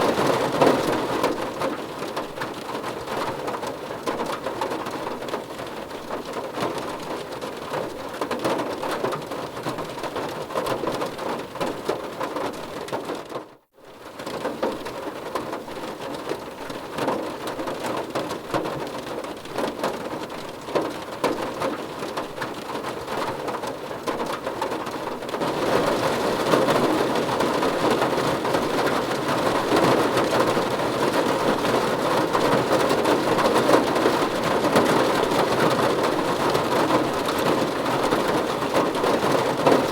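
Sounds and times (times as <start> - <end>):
rain on car roof: 0.0 - 39.9.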